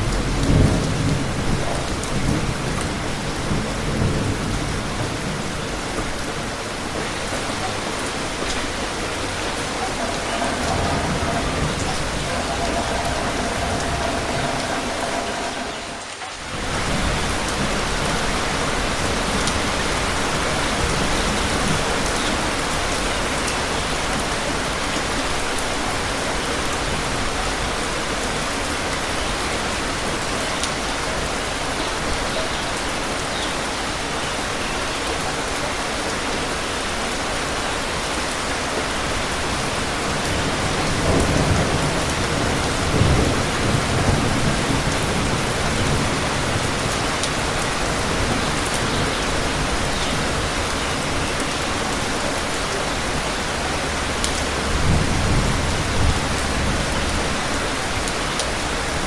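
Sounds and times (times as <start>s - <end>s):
thunder rumbling: 0.0s - 23.3s, 39.2s - 59.0s
heavy rain hissing: 0.0s - 59.0s.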